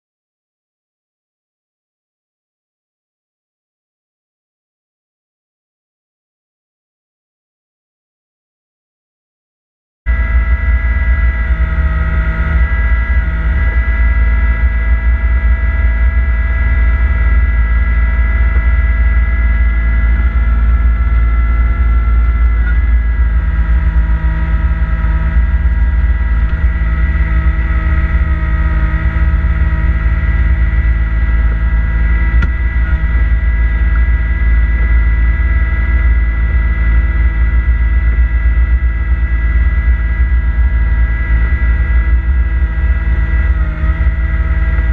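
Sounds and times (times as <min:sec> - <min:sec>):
high whine: 0:10.1 - 0:44.9
tractor diesel engine rumbling: 0:10.1 - 0:44.9.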